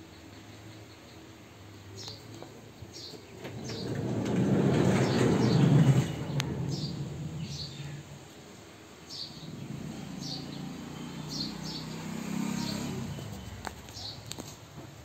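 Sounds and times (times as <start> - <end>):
broad rushing noise: 3.4 - 14.0
small bird chirping: 6.7 - 8.1, 9.1 - 14.6.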